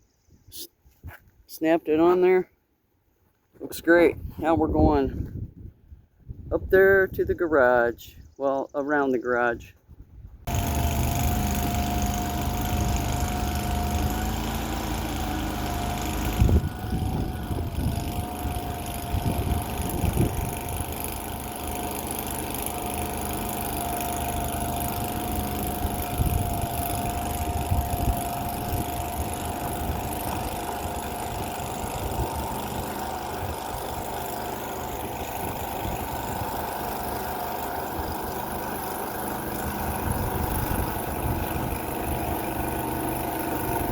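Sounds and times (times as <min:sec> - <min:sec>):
skid steer engine running: 0:10.5 - 0:43.9.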